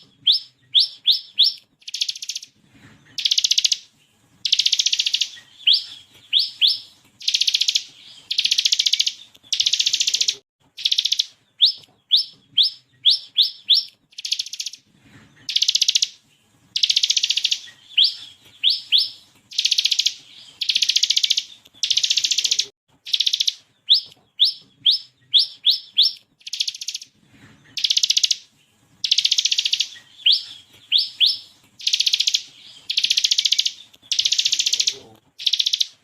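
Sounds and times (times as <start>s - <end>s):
bird rapid rattling trill: 0.3s - 2.5s, 3.2s - 3.8s, 4.4s - 14.8s, 15.5s - 16.2s, 16.8s - 24.6s, 25.4s - 27.1s, 27.7s - 28.4s, 29.0s - 36.0s
bird whistling rising notes: 29.0s - 34.7s.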